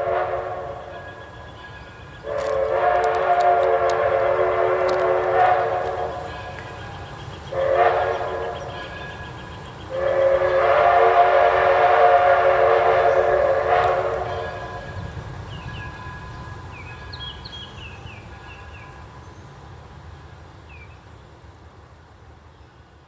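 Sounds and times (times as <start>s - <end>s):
locomotive whistle blasts: 0.0s - 16.5s.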